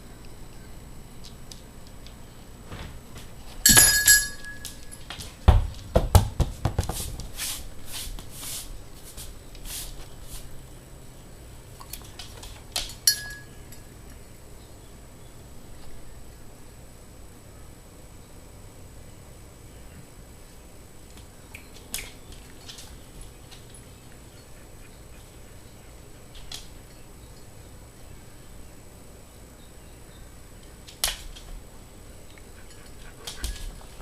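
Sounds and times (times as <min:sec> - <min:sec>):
knocks and scuffles: 0:02.6 - 0:10.5
ringing metallic clink: 0:03.7 - 0:05.1, 0:13.0 - 0:13.8.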